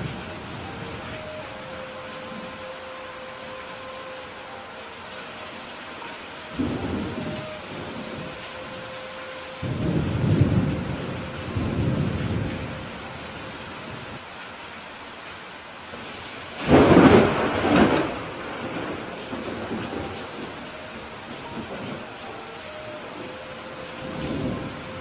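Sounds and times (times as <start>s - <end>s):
steady rain: 0.0s - 25.0s
thunder rumbling: 6.5s - 13.2s, 16.6s - 22.4s, 23.0s - 25.0s.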